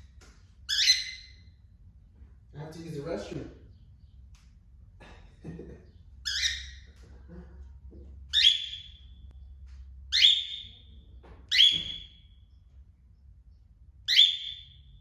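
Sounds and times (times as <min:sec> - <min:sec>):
cockatiel shrieking calls: 0:00.7 - 0:01.4, 0:06.3 - 0:06.9, 0:08.4 - 0:08.9, 0:10.2 - 0:10.7.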